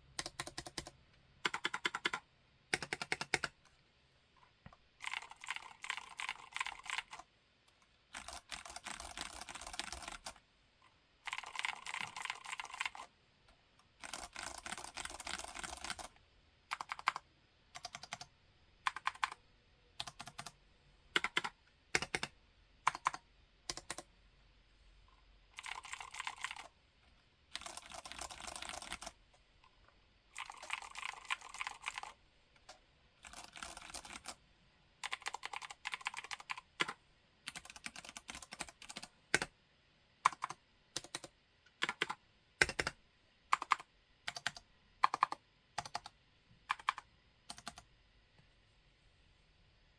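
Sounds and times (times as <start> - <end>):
keyboard typing: 0.2 - 3.6, 5.0 - 7.3, 8.1 - 10.4, 11.3 - 13.1, 14.0 - 17.2, 17.8 - 18.3, 18.9 - 19.4, 20.0 - 20.6, 21.2 - 22.3, 22.9 - 24.1, 25.6 - 26.7, 27.5 - 29.2, 30.4 - 34.4, 35.0 - 39.5, 40.2 - 47.9.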